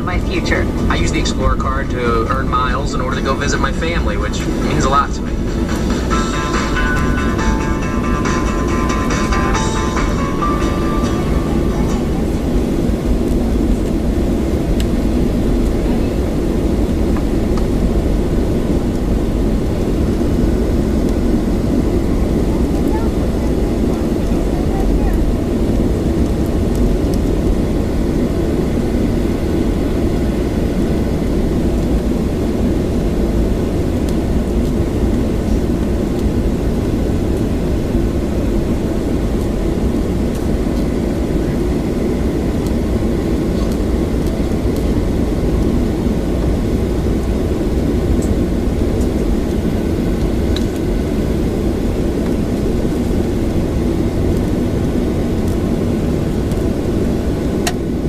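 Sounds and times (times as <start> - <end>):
cabin air system hissing: 0.0 - 26.2
aircraft cabin engine rumble: 0.0 - 58.0.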